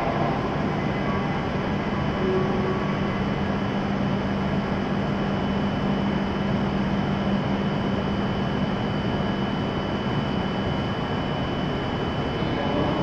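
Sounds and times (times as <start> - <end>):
low hum: 0.0 - 13.0
thin high whine: 0.0 - 13.0
train equipment whirring hum: 0.0 - 13.0.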